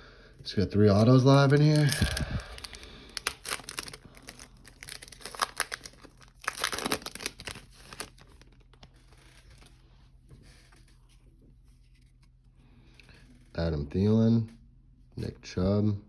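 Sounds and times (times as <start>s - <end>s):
wrapper tearing and crinkling: 0.8s - 9.6s.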